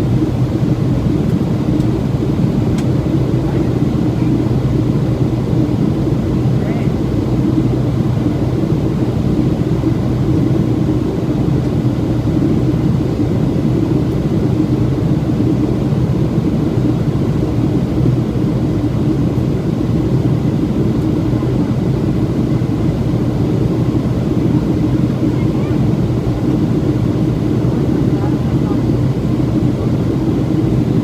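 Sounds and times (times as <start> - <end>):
airplane cabin engine drone: 0.0 - 31.0.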